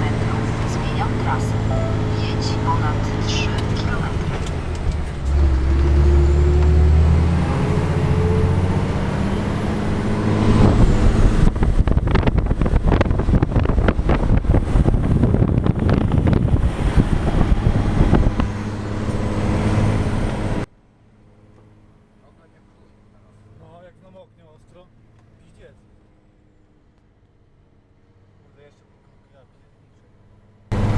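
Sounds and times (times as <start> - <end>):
truck diesel engine running: 0.0 - 23.8, 30.2 - 30.9.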